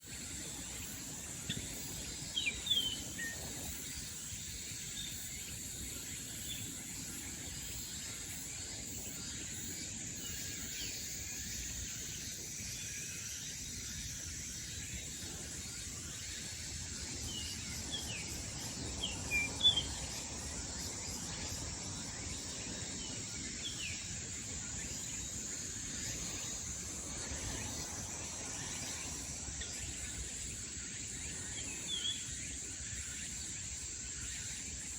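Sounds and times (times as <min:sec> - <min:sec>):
high-pitched insect drone: 0:00.0 - 0:34.9
birds chirping: 0:16.6 - 0:32.6.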